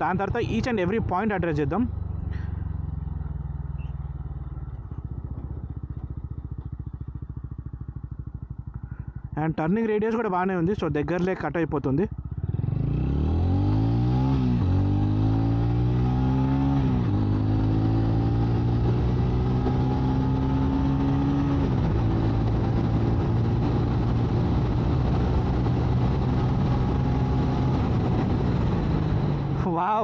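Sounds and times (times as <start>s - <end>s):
motorcycle engine accelerating: 0.0s - 29.7s.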